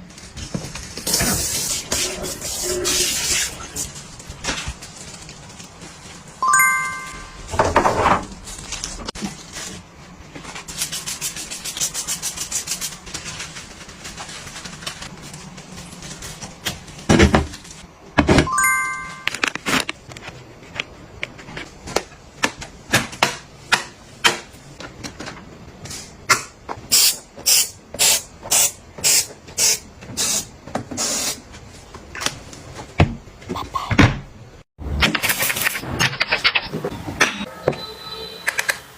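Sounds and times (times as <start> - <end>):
short bright chime: 6.4 - 7.5, 18.5 - 19.4.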